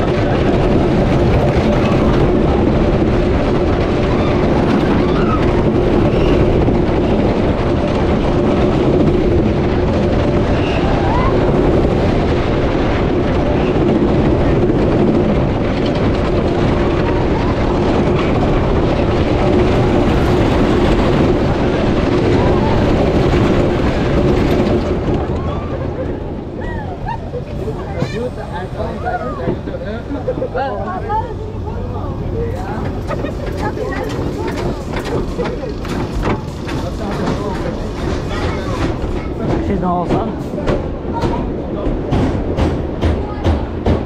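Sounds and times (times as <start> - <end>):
roller coaster rumbling on wooden track: 0.0 - 44.0.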